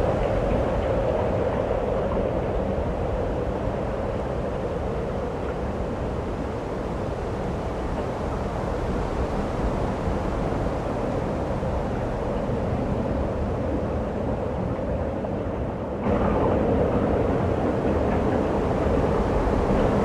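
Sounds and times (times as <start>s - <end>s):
snowstorm wind rushing: 16.0s - 20.0s.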